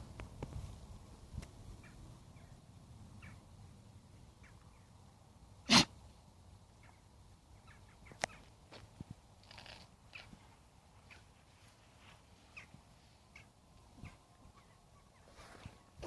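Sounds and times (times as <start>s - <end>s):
dog barking burst: 5.7s - 5.9s.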